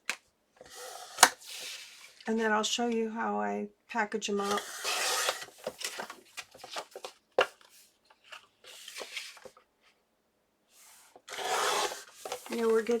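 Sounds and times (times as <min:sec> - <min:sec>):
paper rustling: 0:04.4 - 0:09.6, 0:10.9 - 0:13.0.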